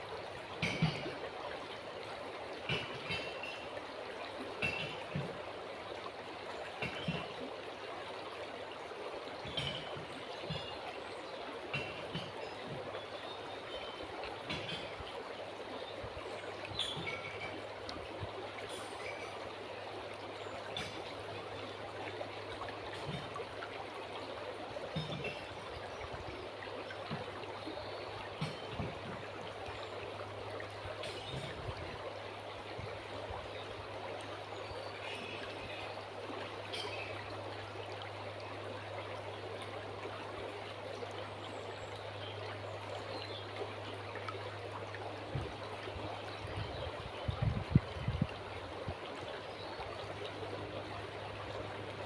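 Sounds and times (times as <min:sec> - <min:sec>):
river water flowing: 0:00.0 - 0:52.0.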